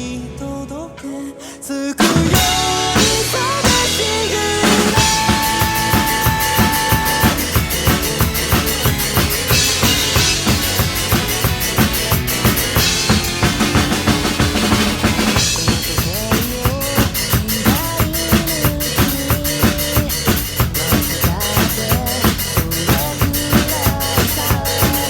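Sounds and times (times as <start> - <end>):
song backing track: 0.0 - 25.0
drum kit playing: 2.0 - 25.0.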